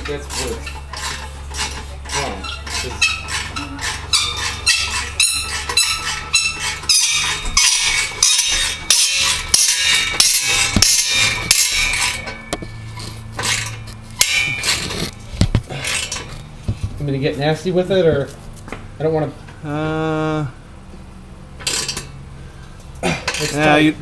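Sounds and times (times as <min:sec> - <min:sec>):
metal pipe clinks and scrapes: 0:00.0 - 0:16.5, 0:21.6 - 0:22.2, 0:23.1 - 0:23.8.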